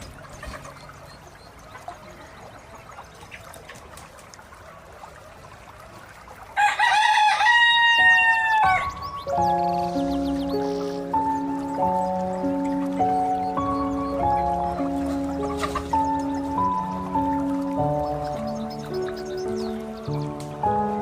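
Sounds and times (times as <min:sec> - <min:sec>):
rooster crowing: 0:06.6 - 0:09.1
music: 0:07.9 - 0:21.0.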